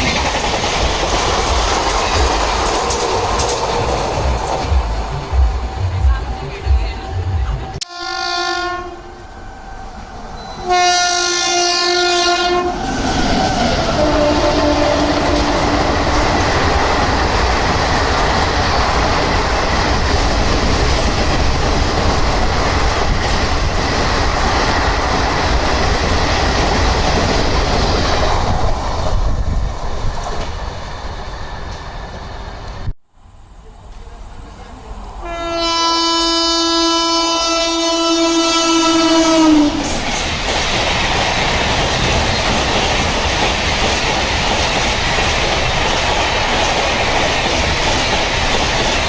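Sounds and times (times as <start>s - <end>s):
train passing at high speed: 0.0s - 49.0s
train horn blasts: 7.8s - 9.6s, 10.4s - 12.9s, 14.0s - 16.4s, 35.2s - 40.0s.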